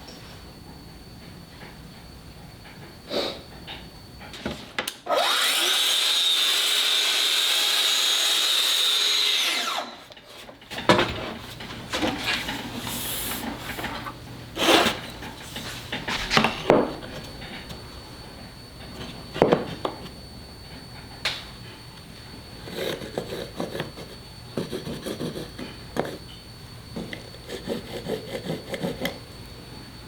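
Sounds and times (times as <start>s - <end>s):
power tool motor: 5.1s - 10.1s.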